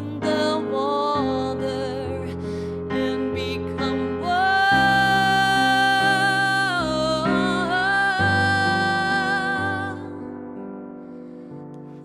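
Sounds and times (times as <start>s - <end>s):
woman singing long note: 4.3s - 10.2s.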